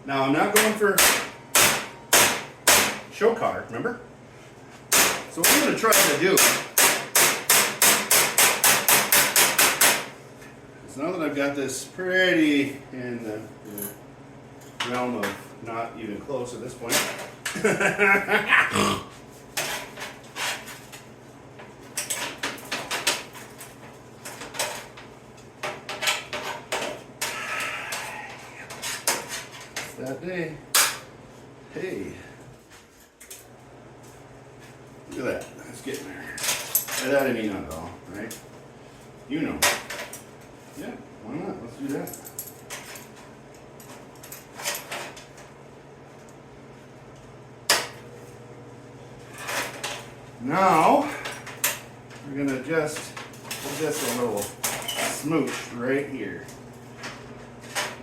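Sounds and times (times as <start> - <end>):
steady low hum: 0.0 - 58.0
hammer striking sheet steel: 0.6 - 3.0, 4.9 - 10.1.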